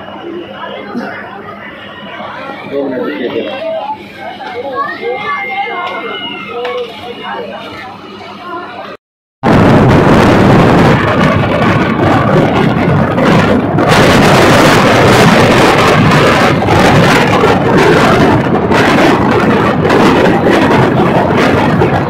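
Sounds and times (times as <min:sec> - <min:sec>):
rushing air: 0:09.4 - 0:22.0
train wheels on rails: 0:10.2 - 0:22.0.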